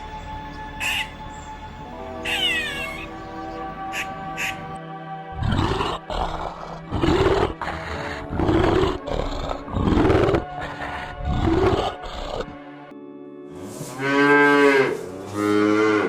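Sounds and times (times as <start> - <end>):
background music: 0.0 - 16.0
big cat roaring: 5.3 - 12.6.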